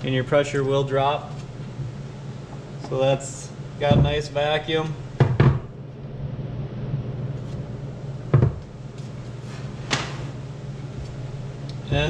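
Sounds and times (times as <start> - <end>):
steady low hum: 0.0 - 12.0
handling knocks: 3.8 - 4.3.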